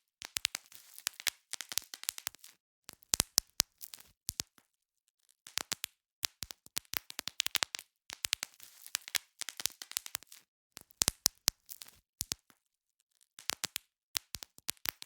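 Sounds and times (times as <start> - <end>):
bubble wrap popping: 0.2 - 4.6, 5.4 - 12.6, 13.3 - 15.0.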